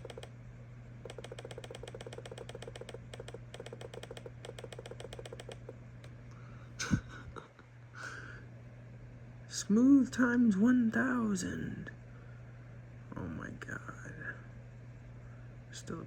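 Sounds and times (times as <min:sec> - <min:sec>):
keyboard key tapping: 0:00.0 - 0:00.3, 0:01.1 - 0:05.7
steady low hum: 0:00.0 - 0:16.0.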